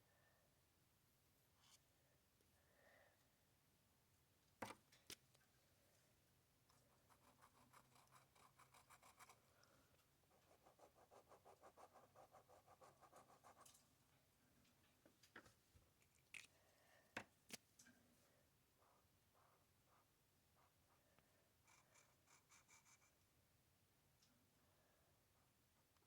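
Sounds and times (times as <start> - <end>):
pencil scratching on paper: 6.9 - 9.4, 10.4 - 13.6, 21.7 - 23.2.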